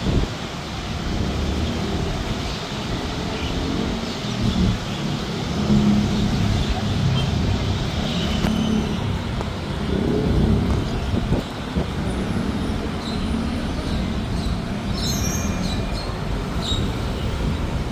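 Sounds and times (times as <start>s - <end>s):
road traffic rumble: 0.0s - 17.9s.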